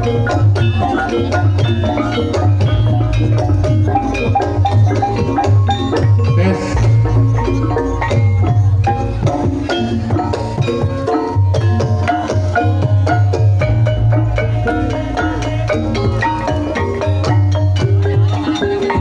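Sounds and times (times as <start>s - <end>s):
gamelan mallet instruments: 0.0s - 19.0s
low booming tone: 2.6s - 9.6s.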